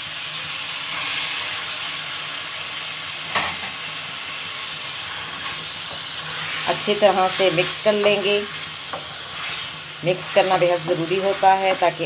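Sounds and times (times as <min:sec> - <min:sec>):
chicken sizzling in hot oil: 0:00.0 - 0:12.0
spatula stirring in wok: 0:05.1 - 0:12.0.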